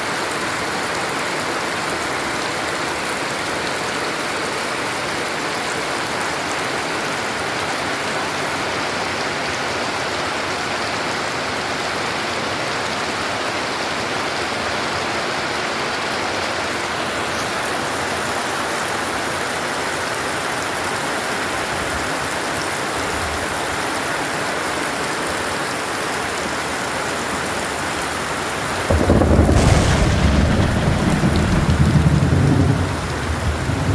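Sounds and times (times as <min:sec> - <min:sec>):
heavy rain pouring: 0:00.0 - 0:33.9.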